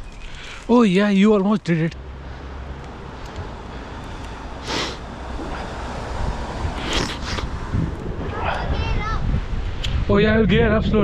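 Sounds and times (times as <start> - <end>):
wind buffeting microphone: 5.3 - 11.0.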